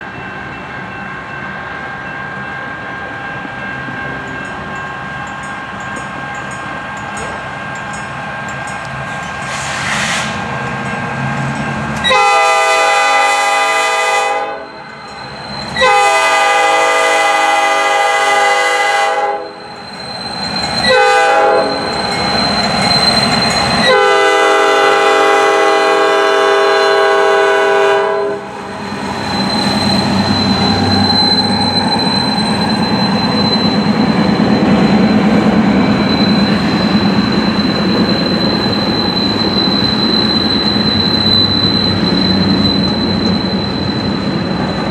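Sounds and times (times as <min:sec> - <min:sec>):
rumble of wheels on rail: 0:00.0 - 0:44.9
locomotive horn: 0:12.0 - 0:14.7, 0:15.8 - 0:19.6, 0:20.8 - 0:21.9, 0:23.8 - 0:28.5
high wheel squeal: 0:14.6 - 0:18.0, 0:19.3 - 0:27.3, 0:28.5 - 0:44.9.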